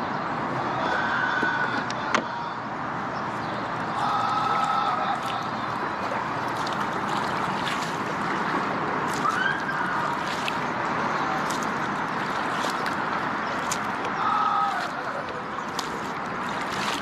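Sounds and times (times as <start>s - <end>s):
water sloshing against hull: 3.2s - 17.0s
paddle splashes: 3.6s - 17.0s.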